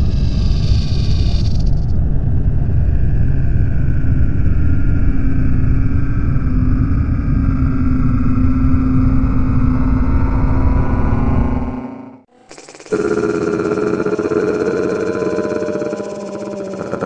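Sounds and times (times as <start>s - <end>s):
loud low rumble: 1.9s - 12.2s.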